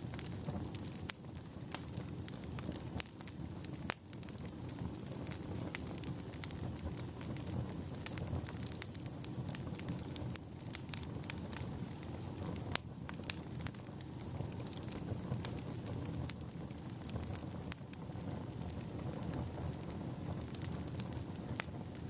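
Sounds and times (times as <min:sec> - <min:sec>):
burning logs crackling and popping: 0:00.0 - 0:22.0
low rumble of flames: 0:00.0 - 0:22.0.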